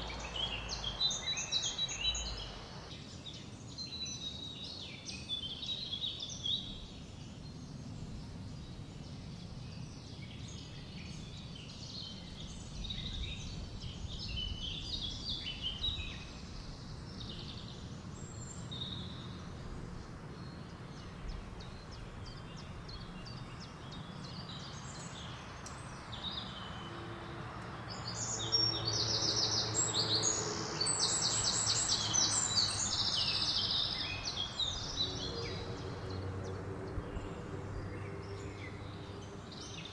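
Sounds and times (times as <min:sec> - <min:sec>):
low steady drone: 0:00.0 - 0:02.9, 0:29.4 - 0:39.8
low wind rumble: 0:00.0 - 0:02.9, 0:30.9 - 0:39.8
songbirds singing: 0:00.0 - 0:39.9.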